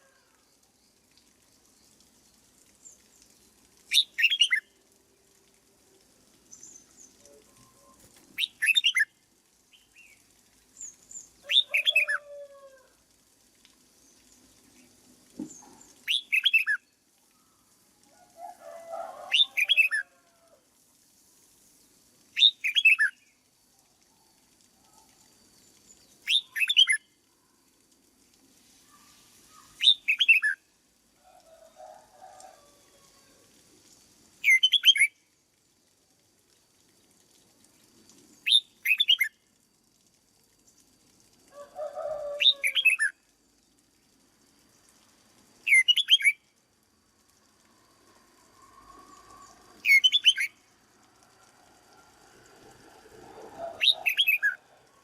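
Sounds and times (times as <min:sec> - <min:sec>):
bird singing song phrases: 0:03.9 - 0:04.7, 0:10.8 - 0:12.2, 0:15.5 - 0:16.8, 0:22.4 - 0:23.2, 0:25.8 - 0:27.0, 0:29.6 - 0:30.6, 0:34.4 - 0:35.1, 0:38.4 - 0:39.3, 0:42.3 - 0:43.1, 0:45.7 - 0:46.4, 0:49.4 - 0:50.6, 0:53.6 - 0:54.6.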